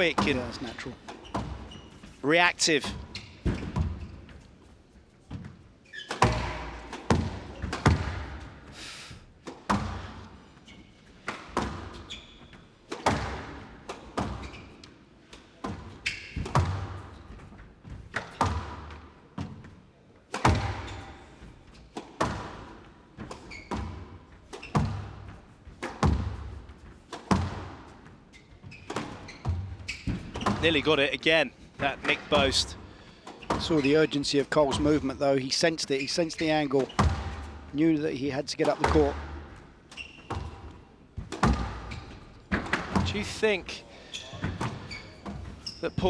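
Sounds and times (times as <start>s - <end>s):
squash ball strikes: 6.1s - 8.8s, 9.4s - 10.3s, 11.3s - 12.0s, 12.9s - 14.6s, 15.6s - 17.2s, 20.3s - 21.3s, 22.0s - 28.2s, 28.9s - 30.9s, 31.9s - 33.9s, 36.8s - 37.7s, 38.6s - 39.6s, 40.2s - 43.5s, 44.4s - 45.4s.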